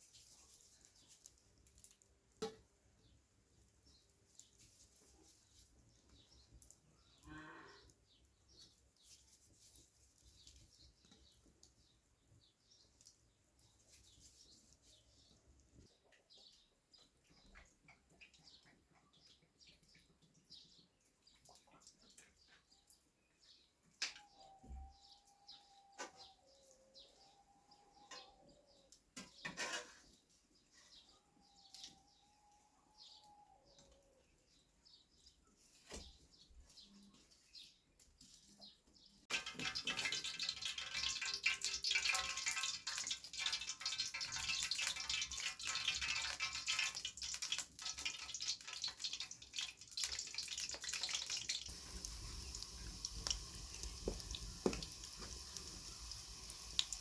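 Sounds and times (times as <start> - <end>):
food frying sizzle: 39.3 - 57.0.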